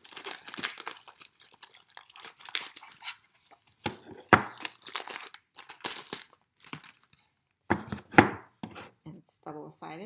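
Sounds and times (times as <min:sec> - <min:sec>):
plastic wrapping crinkling and tearing: 0:00.0 - 0:07.3.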